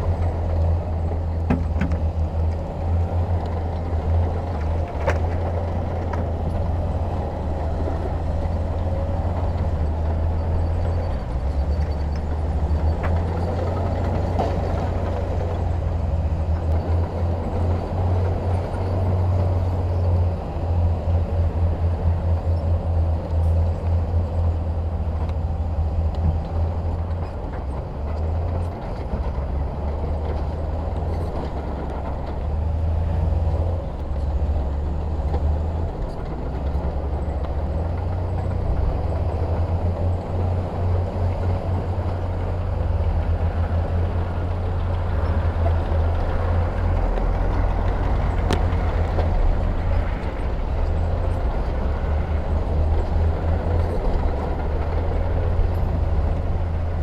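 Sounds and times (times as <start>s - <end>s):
heavy diesel machinery rumble: 0.0s - 57.0s.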